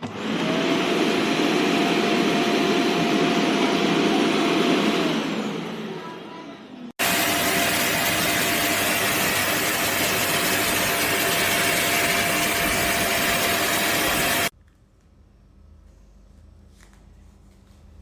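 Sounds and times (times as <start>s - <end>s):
vacuum cleaner running: 0.0s - 6.2s, 7.0s - 14.5s.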